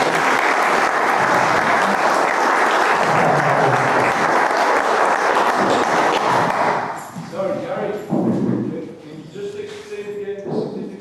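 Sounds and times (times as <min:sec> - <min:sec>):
audience clapping: 0:00.0 - 0:07.0.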